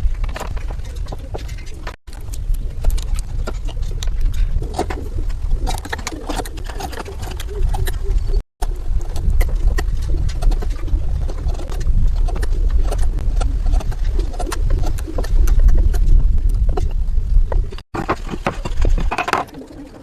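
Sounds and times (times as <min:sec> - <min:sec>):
steady low rumble: 0:00.0 - 0:17.9.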